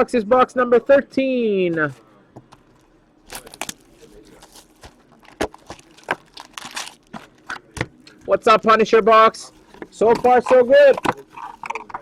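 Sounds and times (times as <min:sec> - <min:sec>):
plastic wrapping tearing: 0:03.2 - 0:07.7.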